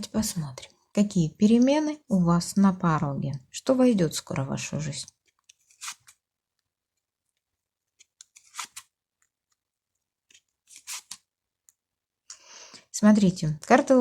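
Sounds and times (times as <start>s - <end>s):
cards rustling and flicking: 5.2s - 6.2s, 7.4s - 9.6s, 10.2s - 11.3s.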